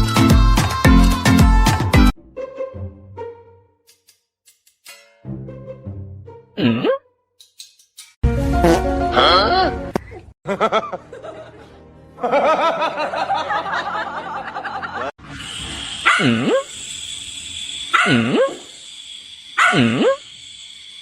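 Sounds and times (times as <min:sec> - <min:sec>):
music: 0:00.0 - 0:03.8, 0:04.9 - 0:06.6, 0:08.2 - 0:15.1
dog barking: 0:16.0 - 0:16.6, 0:17.9 - 0:18.6, 0:19.6 - 0:20.2.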